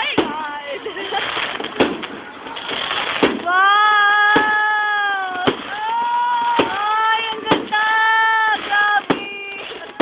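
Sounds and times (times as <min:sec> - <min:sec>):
firework shells bursting: 0:01.0 - 0:10.0.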